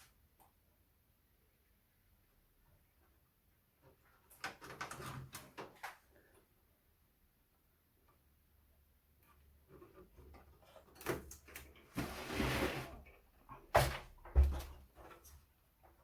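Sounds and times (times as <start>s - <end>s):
scraping slide: 12.0s - 13.0s.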